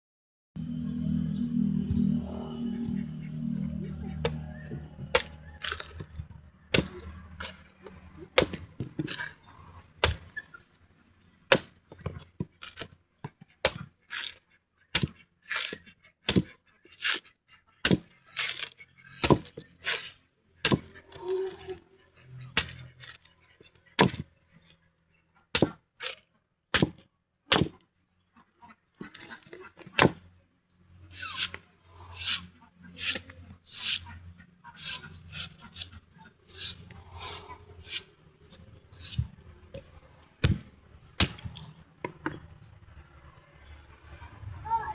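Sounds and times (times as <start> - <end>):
chopping blows on coconut: 4.2 - 6.1, 6.7 - 7.6, 8.4 - 9.3, 16.3 - 16.5, 40.4 - 41.7.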